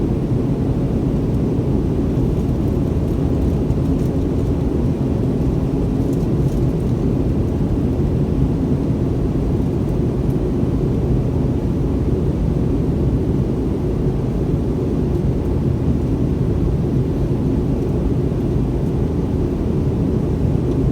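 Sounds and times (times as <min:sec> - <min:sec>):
jet engine roar in cabin: 0:00.0 - 0:20.9.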